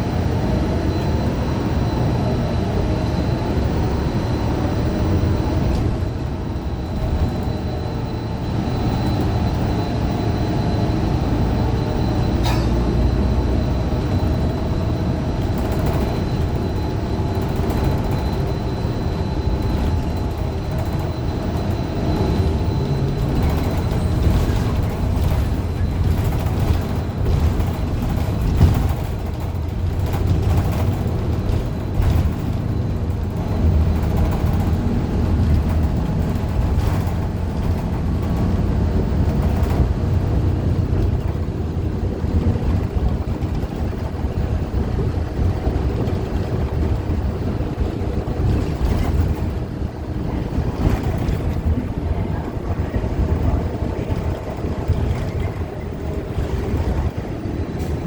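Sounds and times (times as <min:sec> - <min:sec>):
bus engine and road rumble: 0:00.0 - 0:58.0
faint tonal hum: 0:00.0 - 0:58.0.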